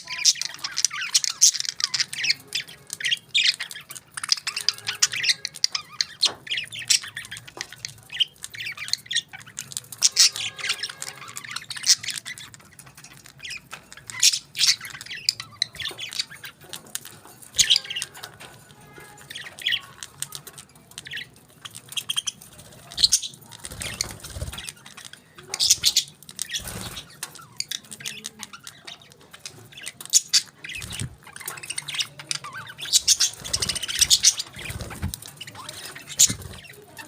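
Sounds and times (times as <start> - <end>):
parrots squawking and chirping: 0.0 - 37.0.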